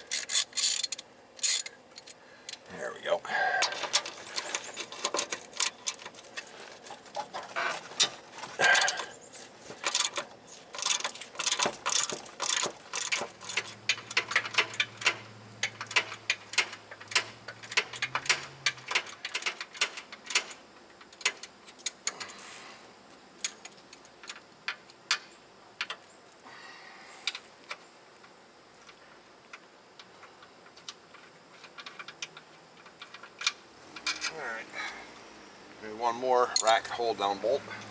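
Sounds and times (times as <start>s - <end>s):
hand ratchet clicking: 0.0s - 2.1s, 10.8s - 20.5s.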